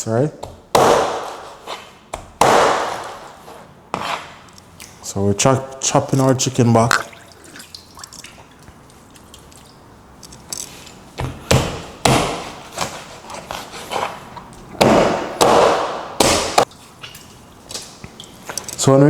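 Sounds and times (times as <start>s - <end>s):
knife chopping through bone: 0.8s - 1.5s, 2.3s - 3.2s, 11.5s - 12.6s, 14.8s - 16.7s
scraping on cutting board: 2.9s - 4.5s, 12.6s - 14.5s.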